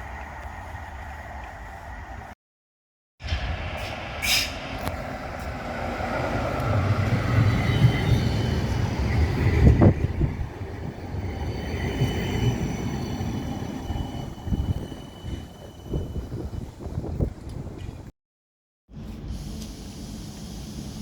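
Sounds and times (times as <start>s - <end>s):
tram wheels rumbling on rail: 3.2s - 18.1s
high wheel squeal: 11.2s - 17.0s.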